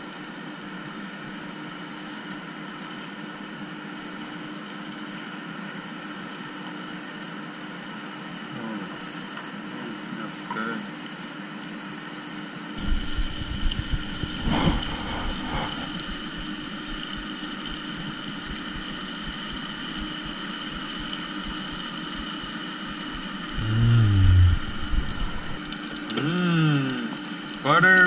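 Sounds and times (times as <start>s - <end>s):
mechanical whirring hum: 10.8s - 27.7s
low rumbling: 12.8s - 25.8s
low vocal sound: 14.3s - 16.6s, 23.4s - 27.2s.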